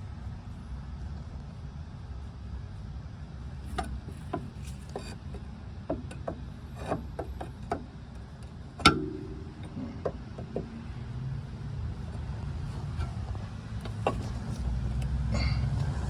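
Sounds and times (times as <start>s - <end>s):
car suspension creaking: 3.6s - 16.0s
suspension knock: 8.8s - 11.1s.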